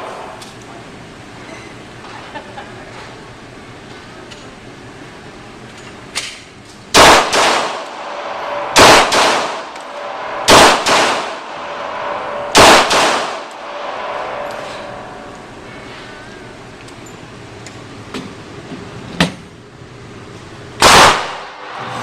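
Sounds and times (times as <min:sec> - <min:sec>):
loud gunshots: 0:06.9 - 0:13.8, 0:20.8 - 0:21.7
gunshot echo: 0:07.0 - 0:14.4, 0:20.8 - 0:21.8.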